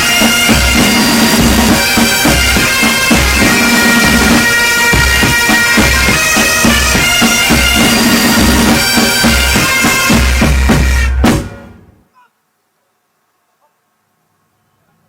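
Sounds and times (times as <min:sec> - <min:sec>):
bagpipe melody with drone: 0:00.0 - 0:11.9
bass drum beats: 0:00.0 - 0:12.0.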